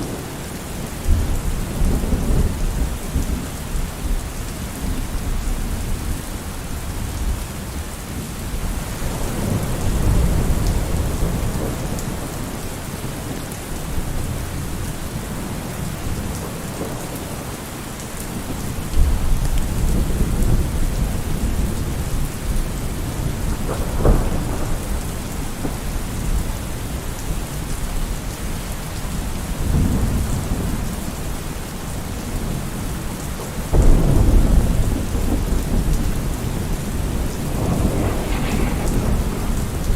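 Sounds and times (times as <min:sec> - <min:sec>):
heavy rain: 0:00.0 - 0:39.9
sharp crack of thunder: 0:23.0 - 0:26.4, 0:33.7 - 0:39.9
thunder rumbling: 0:33.7 - 0:39.9.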